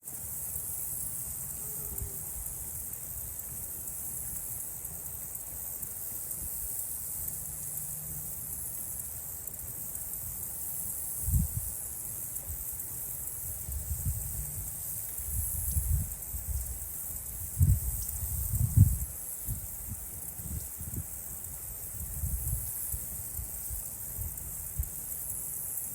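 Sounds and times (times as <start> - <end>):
insects droning: 0.0 - 25.9
wind gusts buffeting microphone: 13.6 - 21.2.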